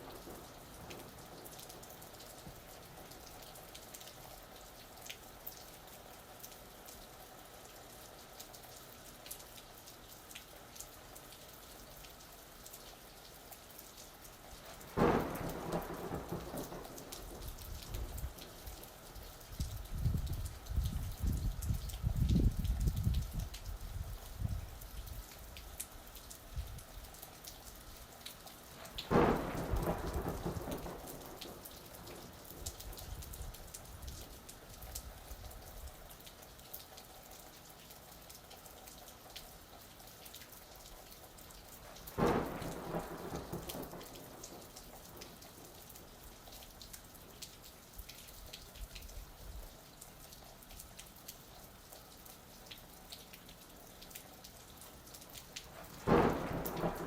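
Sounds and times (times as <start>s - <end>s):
thunder claps rumbling: 0.0s - 1.3s, 14.9s - 18.9s, 29.0s - 33.5s, 42.2s - 45.8s, 55.8s - 57.0s
steady rain pattering: 0.0s - 57.0s.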